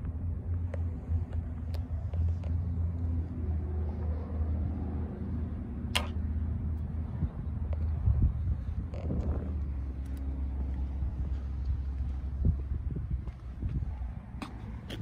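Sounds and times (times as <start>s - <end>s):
sharp click: 5.9s - 6.2s.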